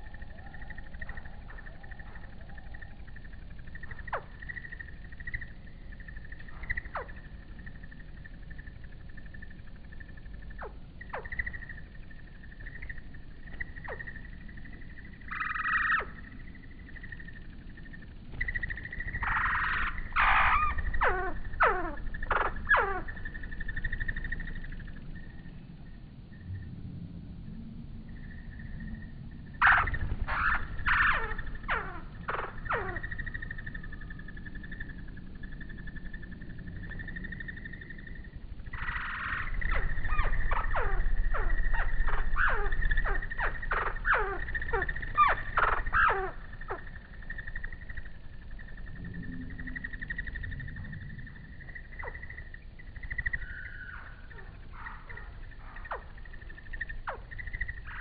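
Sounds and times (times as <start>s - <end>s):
high insect trill: 0.0s - 26.7s, 27.3s - 58.0s
birds rapid falling chirps: 18.3s - 24.6s, 29.6s - 33.5s.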